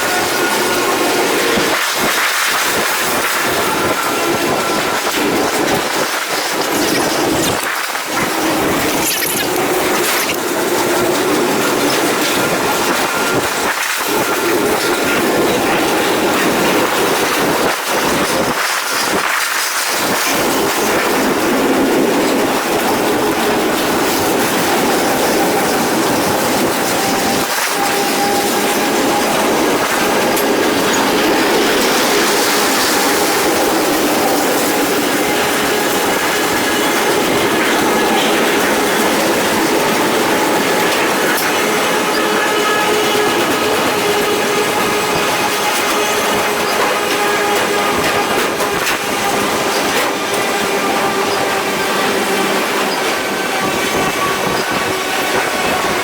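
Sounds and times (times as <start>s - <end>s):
freight train wheels clattering: 0.0s - 56.0s.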